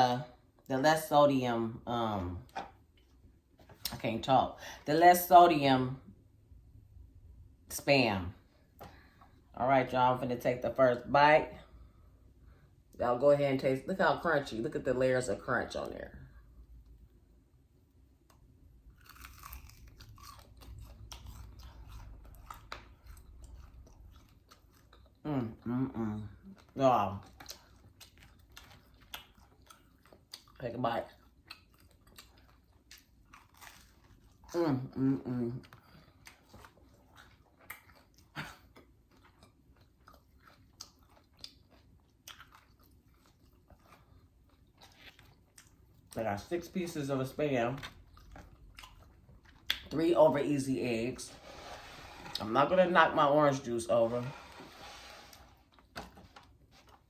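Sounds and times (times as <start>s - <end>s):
crunching fried food: 18.8s - 25.3s, 27.2s - 34.6s, 35.6s - 50.0s.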